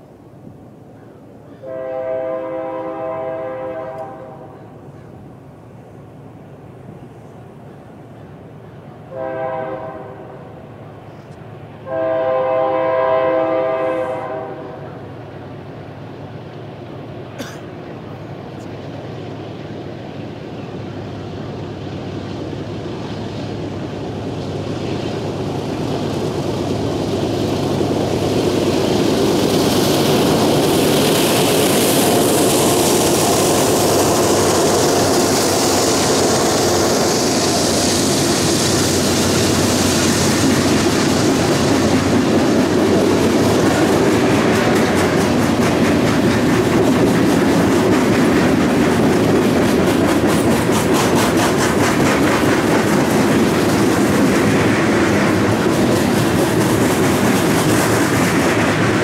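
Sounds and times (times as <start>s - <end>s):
train rumble: 0.0s - 59.0s
locomotive horn blasts: 1.6s - 4.7s, 9.1s - 10.5s, 11.8s - 14.8s
hopper cars clattering: 23.7s - 59.0s.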